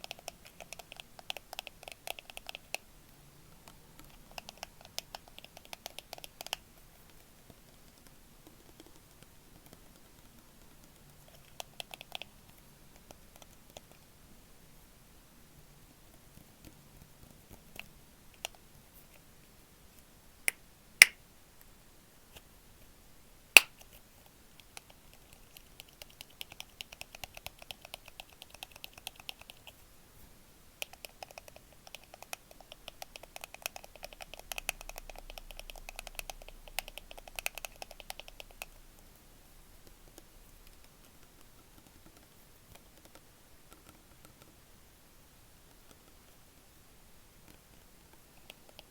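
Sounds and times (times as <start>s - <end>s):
sharp loud snaps: 20.5s - 21.2s, 23.6s - 23.8s.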